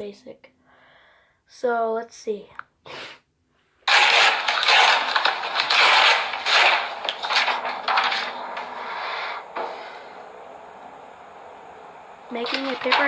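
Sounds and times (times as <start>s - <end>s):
crunching and clattering: 3.8s - 10.4s, 12.3s - 13.0s.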